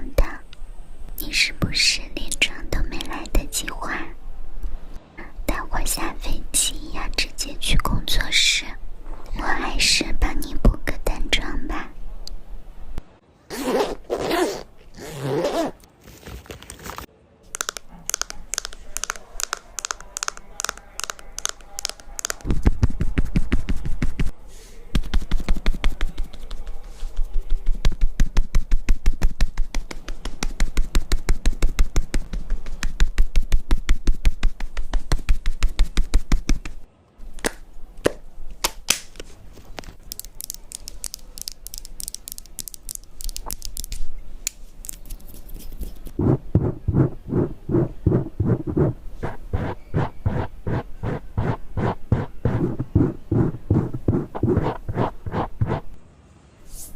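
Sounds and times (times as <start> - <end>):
person whispering: 0.0 - 0.5, 1.2 - 4.2, 5.1 - 12.0
clicking and tapping: 17.5 - 22.5.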